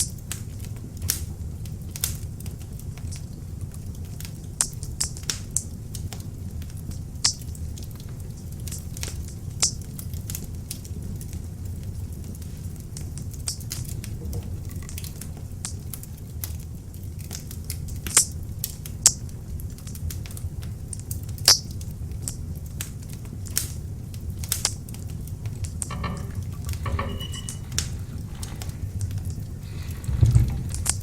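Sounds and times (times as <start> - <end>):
fire flames rumbling: 24.9 - 31.0.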